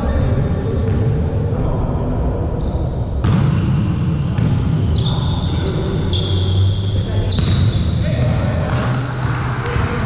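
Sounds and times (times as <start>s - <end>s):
sports hall noise: 0.0s - 10.0s
shoe squeaks: 2.6s - 8.1s.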